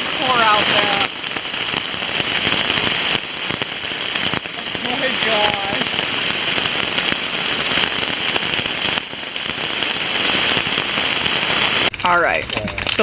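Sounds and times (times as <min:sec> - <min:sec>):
heavy rain on a tent: 0:00.0 - 0:13.0.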